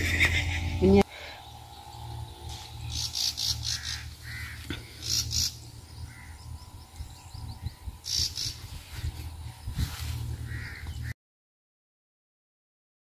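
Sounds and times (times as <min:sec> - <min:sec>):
low rumble: 0:00.0 - 0:11.1
birds calling scratchy bursts: 0:00.0 - 0:11.2.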